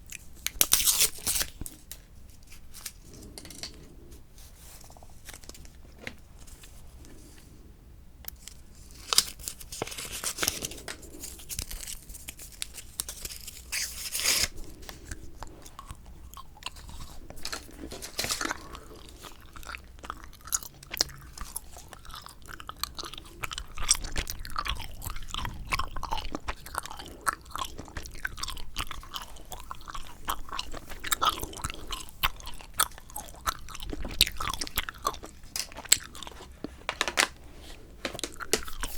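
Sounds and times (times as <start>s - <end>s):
bubble gum chewing: 9.0s - 37.4s, 38.0s - 38.9s.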